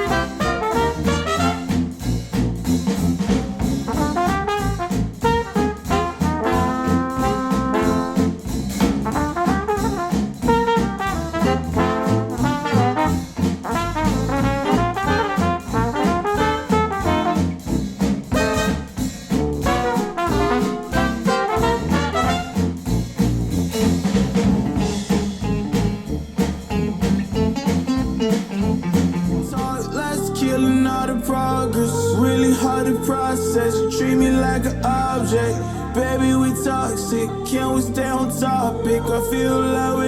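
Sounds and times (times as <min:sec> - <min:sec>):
brass instrumental music over beat: 0:00.0 - 0:31.2.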